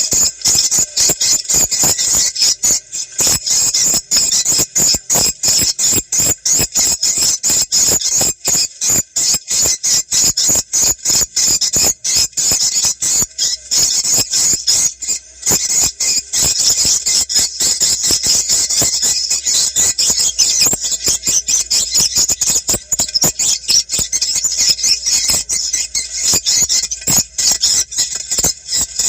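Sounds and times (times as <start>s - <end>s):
high-pitched bird chirps: 0.0s - 29.0s.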